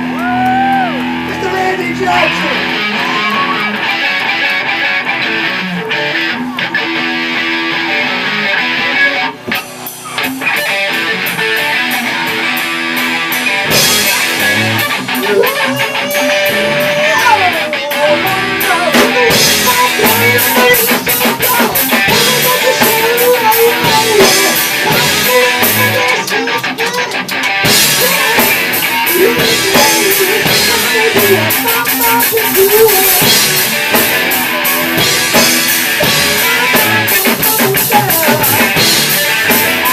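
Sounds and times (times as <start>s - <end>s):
drums: 0.0s - 39.9s
electric guitar: 0.0s - 39.9s
live rock band playing: 0.0s - 39.9s.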